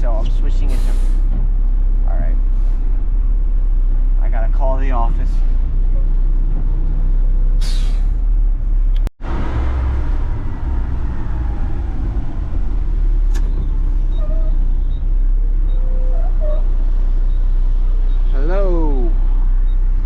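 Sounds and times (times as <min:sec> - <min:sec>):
truck diesel engine rumbling: 0:00.0 - 0:20.0.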